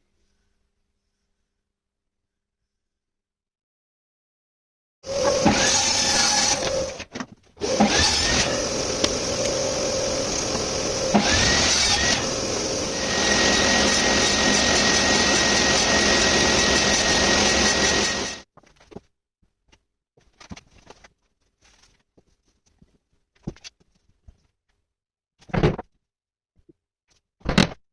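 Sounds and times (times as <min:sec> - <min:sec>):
power tool cutting wood: 0:05.0 - 0:18.4.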